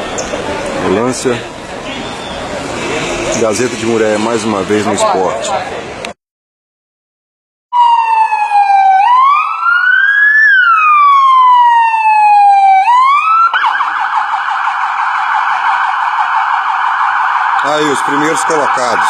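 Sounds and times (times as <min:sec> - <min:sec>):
ambulance siren wailing: 0:07.7 - 0:19.0.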